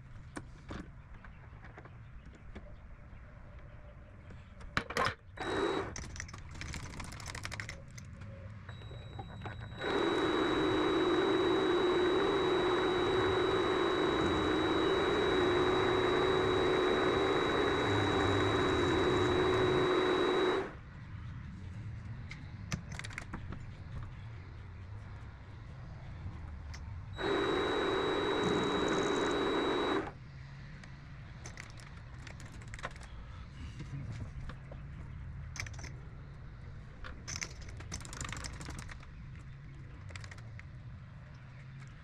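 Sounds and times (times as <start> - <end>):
motor-driven machine whining: 5.4 - 6.0, 8.7 - 20.8, 27.2 - 30.2.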